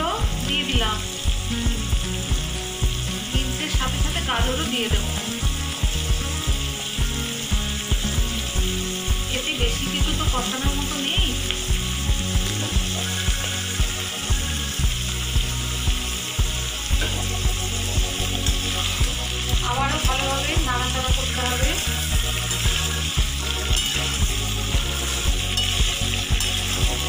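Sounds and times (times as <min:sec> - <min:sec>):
background music with steady beat: 0:00.0 - 0:27.0
vegetables sizzling in a pan: 0:00.0 - 0:27.0
metal spatula stirring: 0:22.4 - 0:24.2, 0:25.0 - 0:26.9.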